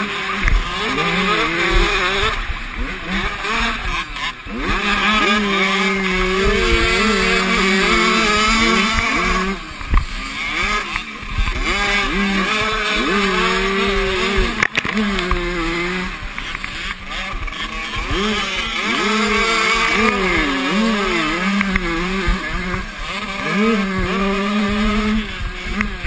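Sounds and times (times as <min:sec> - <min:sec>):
motorcycle engines revving: 0:00.0 - 0:26.0.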